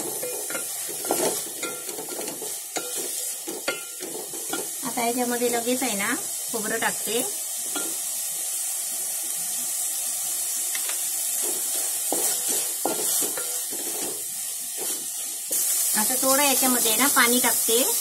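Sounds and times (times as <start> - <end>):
food sizzling in hot oil: 0.0 - 18.0
wooden spatula scraping pot: 11.4 - 14.2.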